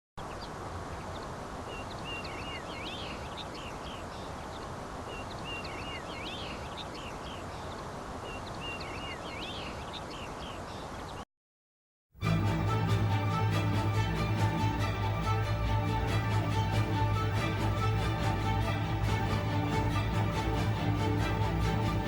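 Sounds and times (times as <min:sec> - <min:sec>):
birds chirping: 0:00.2 - 0:11.2
outdoor ambience: 0:00.2 - 0:11.2.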